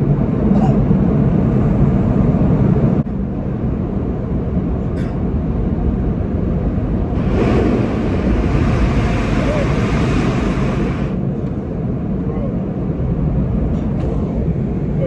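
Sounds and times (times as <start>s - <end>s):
car wash machinery rumble: 5.4s - 12.0s
spray hiss: 7.2s - 11.2s.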